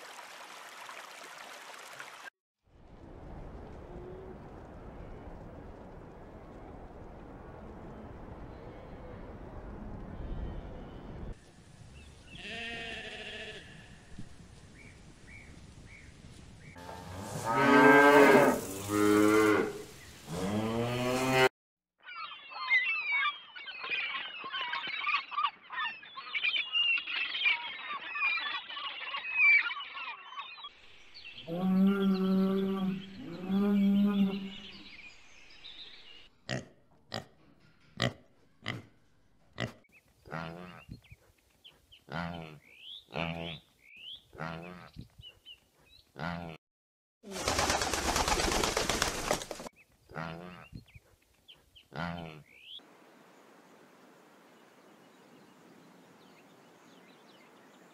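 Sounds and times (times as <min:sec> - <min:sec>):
faint sheep bleat: 0:12.4 - 0:14.0.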